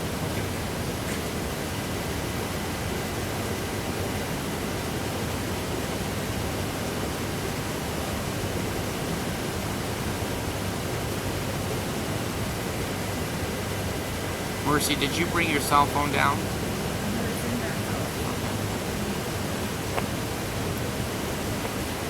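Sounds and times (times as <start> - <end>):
steady rushing noise: 11.2 - 22.0.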